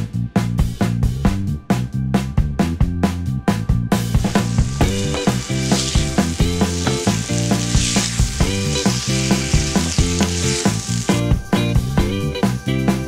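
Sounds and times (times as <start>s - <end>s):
background music with a beat: 0.0s - 13.0s
food sizzling in a frying pan: 4.1s - 11.6s
spatula stirring in a pan: 4.2s - 11.2s.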